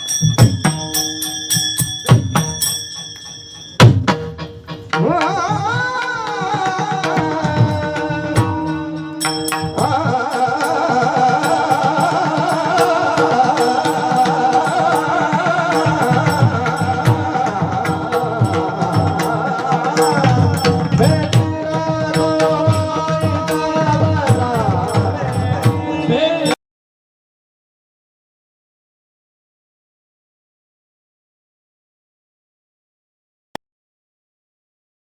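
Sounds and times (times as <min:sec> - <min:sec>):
sliding wavering melody: 0:00.0 - 0:04.7
hand drum playing: 0:00.0 - 0:26.2.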